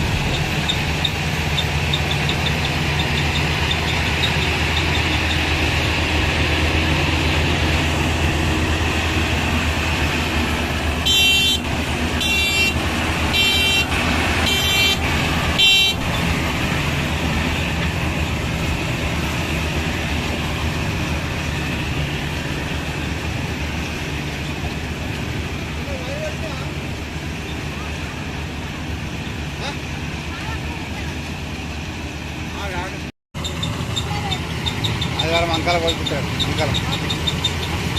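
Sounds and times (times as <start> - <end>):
diesel engine running: 0.0 - 37.9
high-pitched vehicle horn blasts: 11.0 - 16.3.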